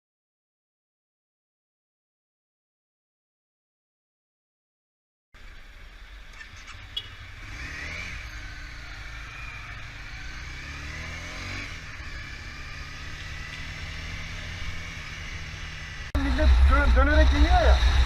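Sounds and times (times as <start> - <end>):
motorcycle engine running: 5.4 - 18.0.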